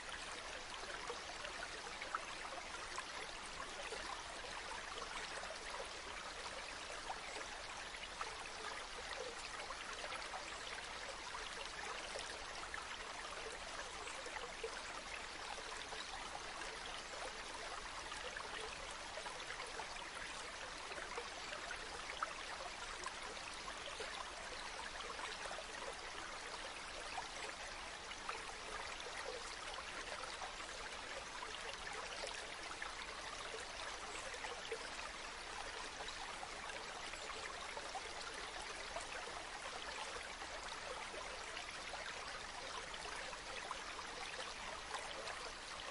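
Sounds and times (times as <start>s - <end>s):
stream water trickling: 0.0s - 45.9s.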